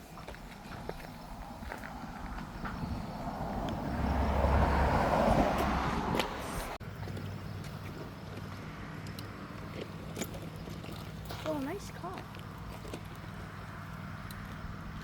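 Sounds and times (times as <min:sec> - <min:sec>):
car passing close by: 0:00.2 - 0:07.3.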